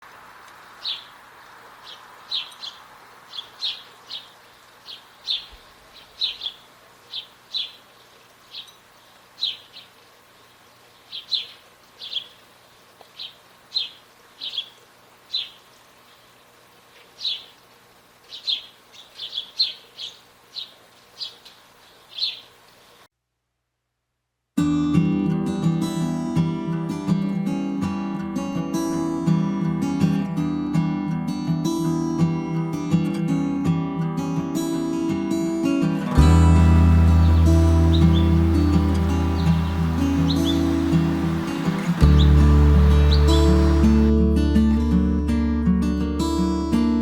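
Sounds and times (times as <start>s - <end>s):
faint steady hiss: 0.0s - 24.6s, 31.3s - 47.0s
bird chip calls: 0.6s - 23.0s, 37.0s - 44.1s.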